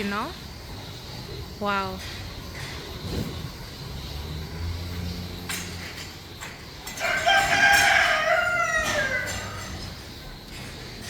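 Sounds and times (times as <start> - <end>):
rooster crowing: 6.9 - 10.0.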